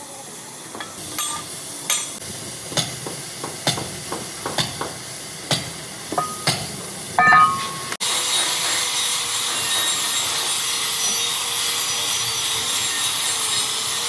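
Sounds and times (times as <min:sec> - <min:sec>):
metallic clinks and knocks: 0:06.1 - 0:08.0.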